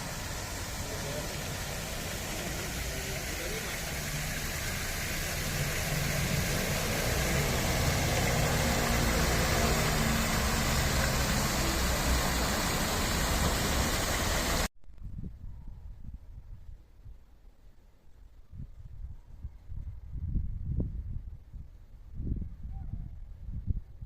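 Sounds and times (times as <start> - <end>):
vehicle engine rumbling: 0.0 - 14.7.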